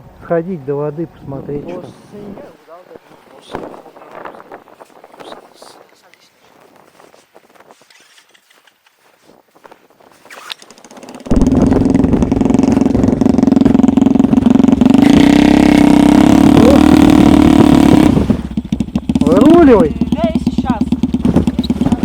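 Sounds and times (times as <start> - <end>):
snowmobile engine starting and revving: 10.4 - 22.0.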